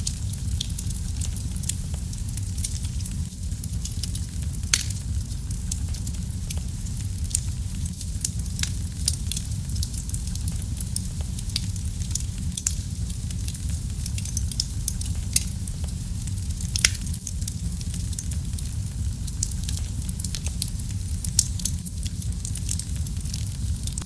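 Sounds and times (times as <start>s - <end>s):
loud fire pops: 0.0s - 24.0s
wood fire crackling: 0.0s - 24.0s.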